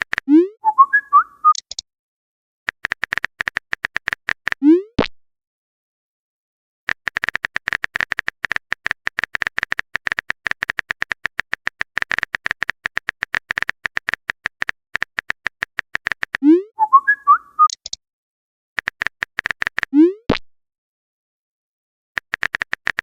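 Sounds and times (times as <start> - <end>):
clicky typing blips: 0.0 - 1.8, 2.7 - 5.1, 6.9 - 18.0, 18.8 - 20.4, 22.2 - 23.0.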